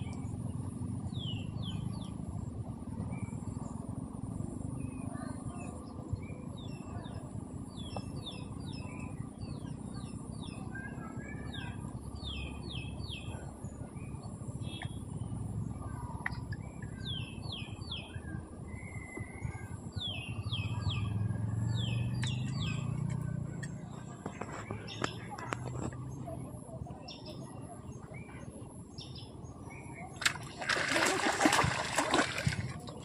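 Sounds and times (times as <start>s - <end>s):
steady low rumble: 0.0s - 11.0s, 11.7s - 33.0s
small birds chirping: 0.0s - 33.0s.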